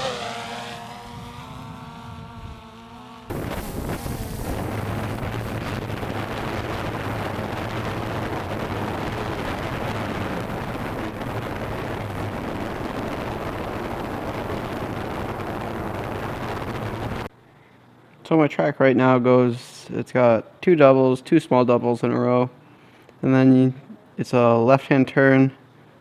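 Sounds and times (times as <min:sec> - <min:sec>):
drone propellers humming: 0:00.0 - 0:14.2
wind noise on microphone: 0:00.0 - 0:17.3.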